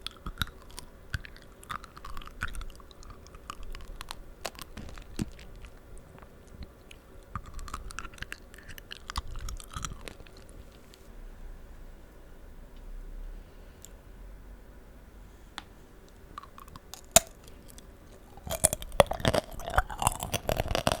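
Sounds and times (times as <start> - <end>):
candy shell crunching: 0.0 - 10.8, 16.3 - 21.0
moist chewing: 0.0 - 11.1, 16.1 - 21.0.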